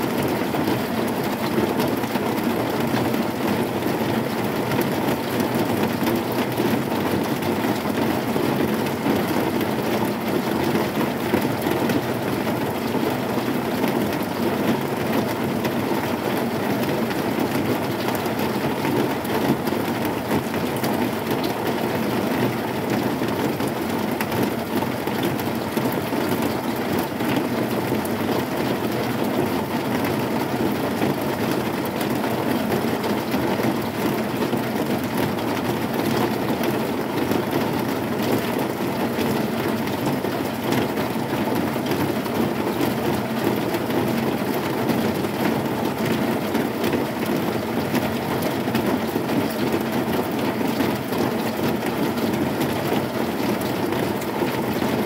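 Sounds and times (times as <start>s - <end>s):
heavy rain on a metal roof: 0.0s - 55.0s.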